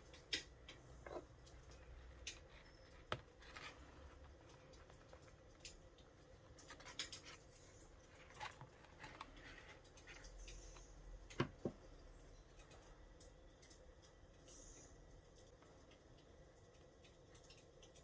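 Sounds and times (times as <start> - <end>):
light clicks and rustles: 0.0 - 14.7.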